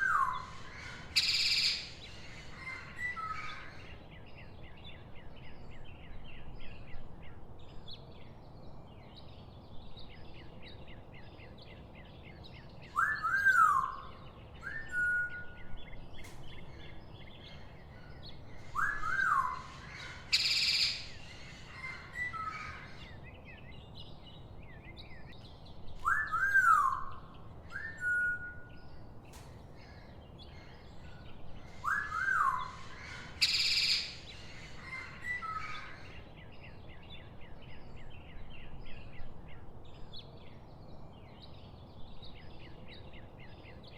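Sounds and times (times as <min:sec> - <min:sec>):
bird calls sweeping up and down: 0:00.0 - 0:03.7, 0:18.3 - 0:22.9, 0:31.7 - 0:36.0
harsh noisy bird calls: 0:00.0 - 0:04.6, 0:16.2 - 0:24.6, 0:29.7 - 0:36.8
small birds chirping: 0:00.0 - 0:43.9.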